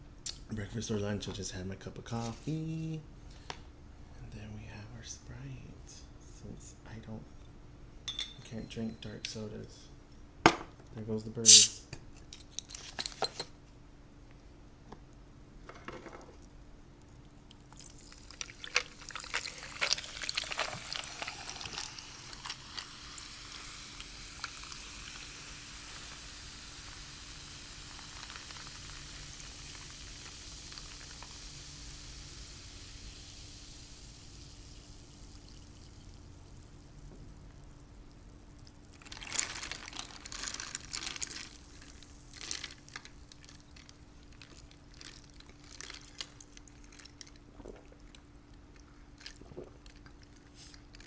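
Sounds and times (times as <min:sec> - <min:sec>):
faint steady hum: 0:00.0 - 0:51.0
soda fizzing: 0:11.4 - 0:11.8, 0:17.8 - 0:43.8
soda pouring and splashing: 0:11.4 - 0:11.8, 0:17.7 - 0:43.8.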